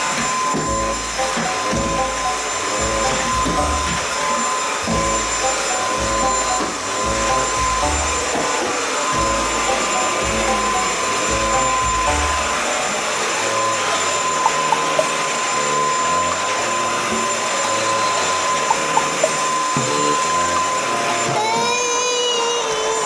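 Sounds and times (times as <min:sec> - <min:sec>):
stick vacuum cleaner running: 0:00.0 - 0:23.0.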